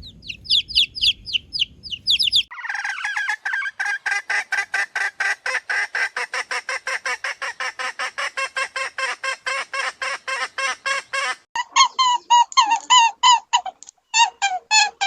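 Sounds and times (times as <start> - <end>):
clear pitched bird calls: 0.0 - 3.7
bird rapid repeated calls: 0.0 - 4.2.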